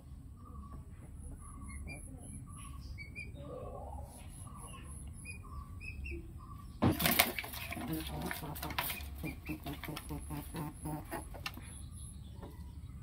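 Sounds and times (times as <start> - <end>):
low steady hum: 0.0 - 13.0
small birds chirping: 0.0 - 13.0.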